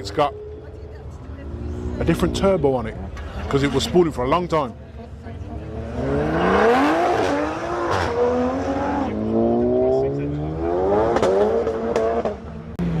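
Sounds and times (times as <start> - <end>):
car engine accelerating: 5.5 - 13.0.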